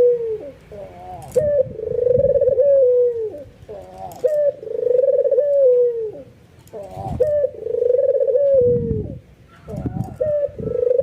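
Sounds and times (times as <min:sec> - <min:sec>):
dove cooing: 0:00.0 - 0:11.0.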